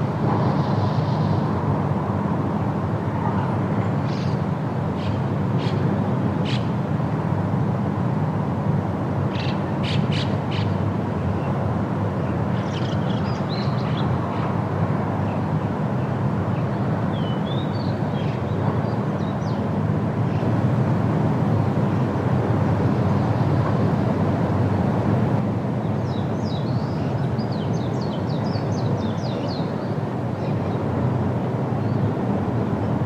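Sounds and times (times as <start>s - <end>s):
wind rushing through trees: 0.0s - 33.0s
songbirds chirping: 9.4s - 20.6s, 25.7s - 32.2s.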